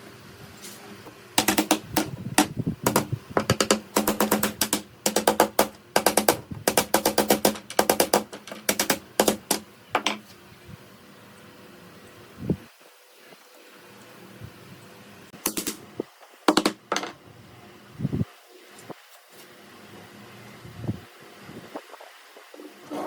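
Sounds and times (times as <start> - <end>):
rapid sharp knocks: 1.4 - 10.2, 15.4 - 15.8, 16.5 - 17.1.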